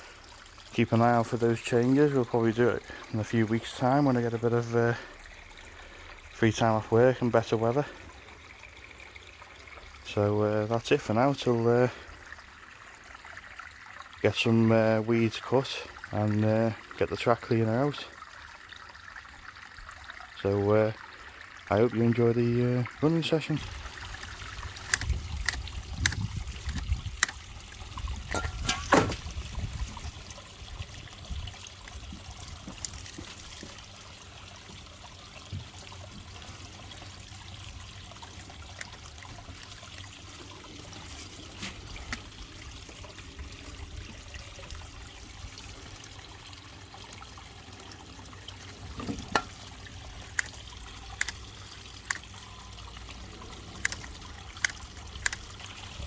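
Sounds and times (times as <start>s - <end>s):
water trickling: 0.0s - 56.0s
sharp clicks: 24.2s - 27.4s, 53.8s - 55.5s.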